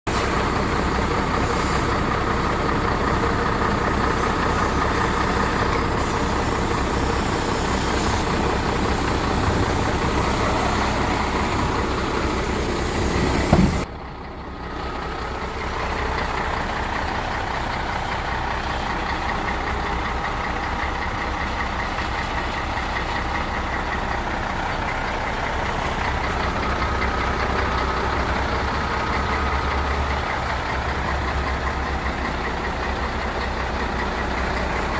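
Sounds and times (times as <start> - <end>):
diesel engine idling: 0.1 - 34.9
loud engine knock: 13.3 - 13.9.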